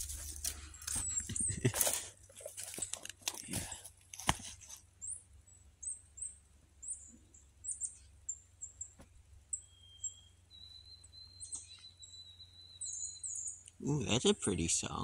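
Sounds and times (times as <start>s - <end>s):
high bird chirps: 5.8s - 13.8s.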